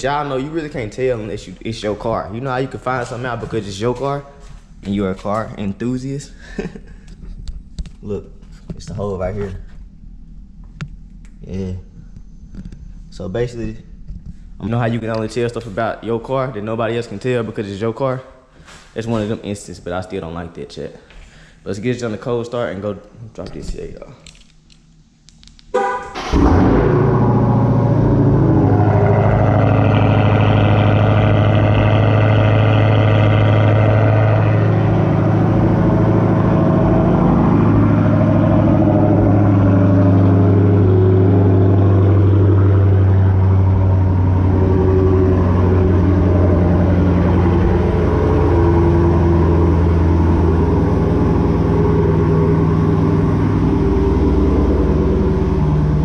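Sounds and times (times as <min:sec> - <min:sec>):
car engine idling: 0:00.0 - 0:17.8, 0:25.8 - 0:56.0
high whine: 0:25.8 - 0:56.0.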